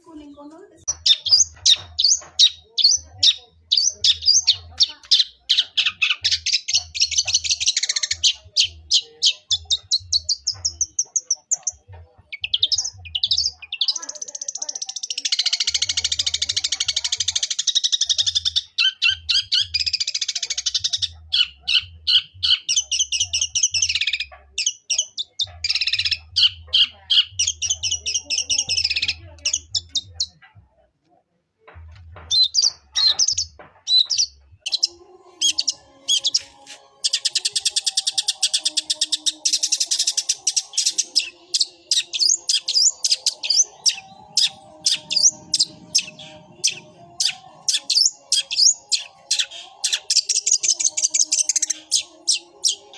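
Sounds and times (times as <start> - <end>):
shrike singing sharp chirps: 32.3 - 52.9.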